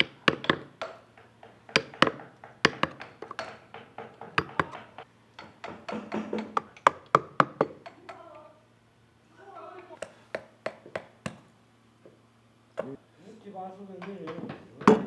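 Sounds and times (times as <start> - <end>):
carving tool knocking into wood: 0.0 - 8.2, 10.3 - 11.5.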